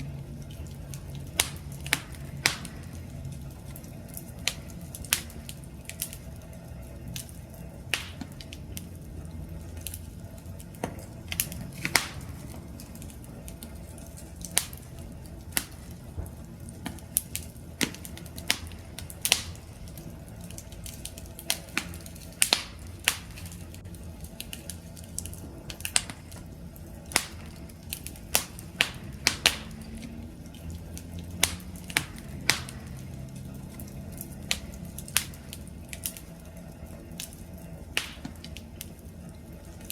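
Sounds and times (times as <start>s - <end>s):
campfire pops and snaps: 0.0s - 39.9s
low rumble of burning flames: 0.0s - 39.9s.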